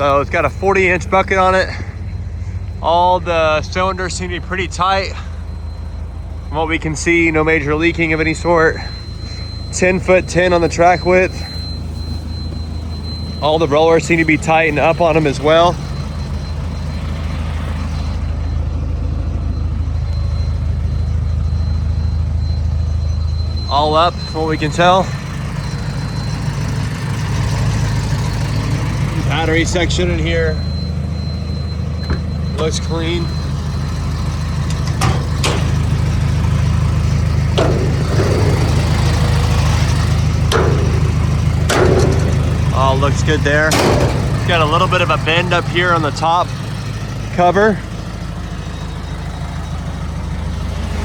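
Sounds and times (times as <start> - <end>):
diesel engine idling: 0.0 - 51.0
sharp knocks: 37.6 - 42.8.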